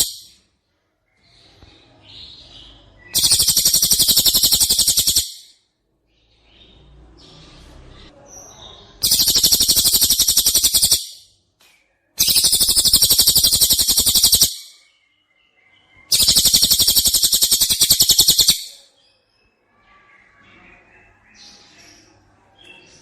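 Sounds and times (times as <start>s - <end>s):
songbird rapid high trill: 3.2s - 5.5s, 9.0s - 11.2s, 12.2s - 14.8s, 16.1s - 18.8s.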